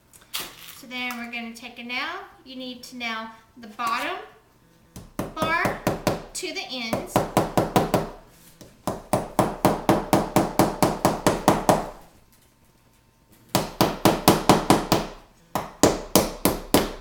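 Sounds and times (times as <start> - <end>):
hammer tapping nail into wood: 13.6 - 17.0.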